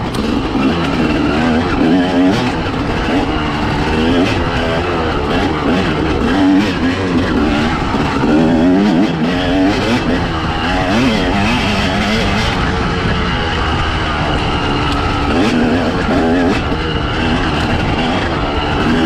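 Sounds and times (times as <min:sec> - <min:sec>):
two-stroke motorcycle revving: 0:00.0 - 0:19.0.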